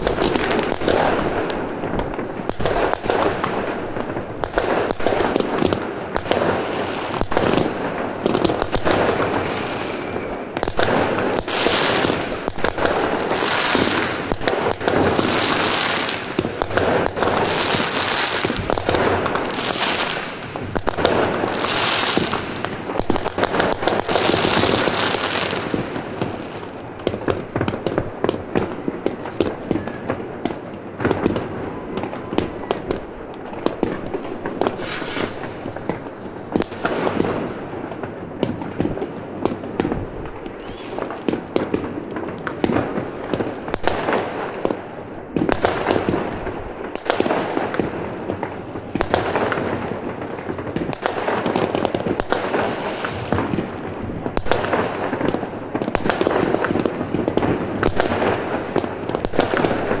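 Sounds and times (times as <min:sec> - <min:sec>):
loud sharp firework reports: 0:00.0 - 0:26.4, 0:33.6 - 1:00.0
firecrackers crackling: 0:00.0 - 1:00.0
falling firework whistles: 0:08.7 - 0:16.4, 0:34.6 - 0:39.0, 0:40.5 - 0:41.1, 0:42.5 - 0:43.9.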